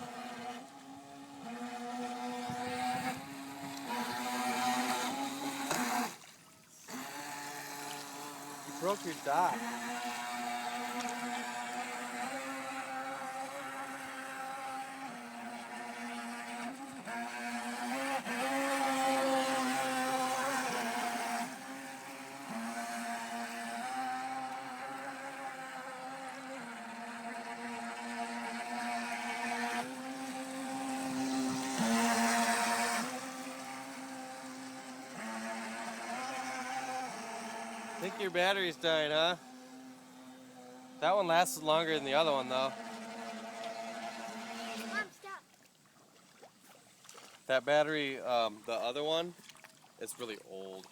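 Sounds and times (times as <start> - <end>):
rc boat motor whine: 0.0 - 46.2, 47.4 - 50.9.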